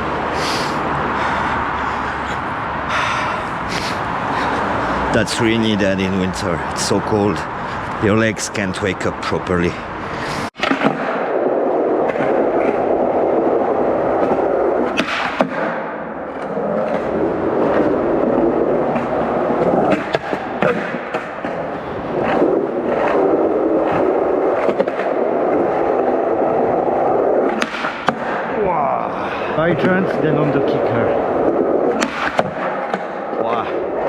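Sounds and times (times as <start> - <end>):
skateboard wheels rolling on pavement: 0.0 - 34.0
skateboard clacks: 10.6 - 28.6, 31.2 - 34.0.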